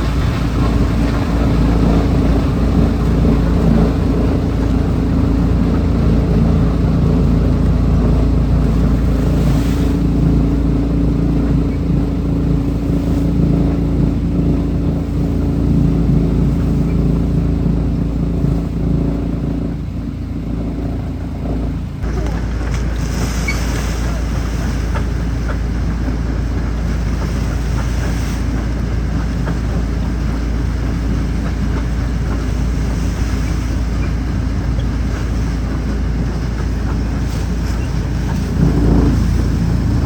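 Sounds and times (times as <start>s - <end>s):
wood chipper running: 13.5s - 27.9s, 28.6s - 40.0s.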